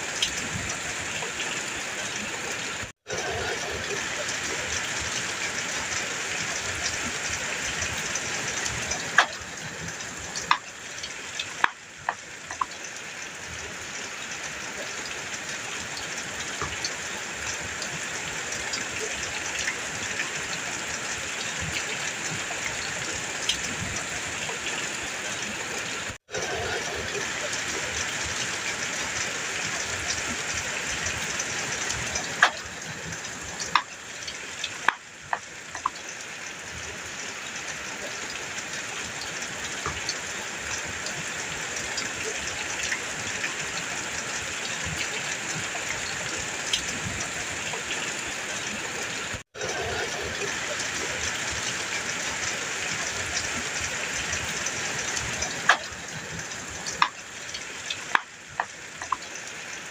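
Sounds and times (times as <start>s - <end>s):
heavy rain on a metal roof: 0.0s - 59.9s.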